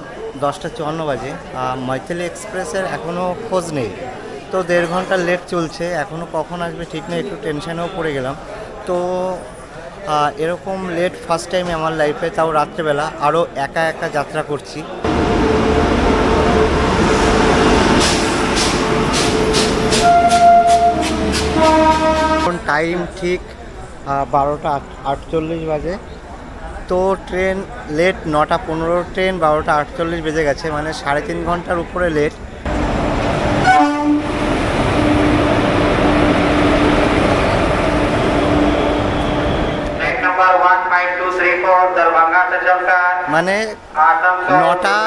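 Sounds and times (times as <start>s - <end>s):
train rumbling on rails: 15.0s - 30.8s, 31.4s - 40.6s.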